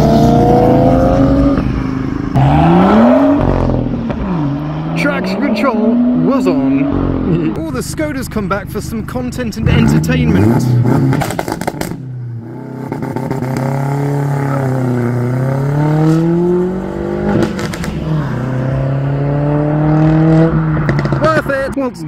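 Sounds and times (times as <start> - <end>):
car engine accelerating past: 0.0 - 7.6, 9.7 - 21.3
exhaust crackle: 0.0 - 21.8.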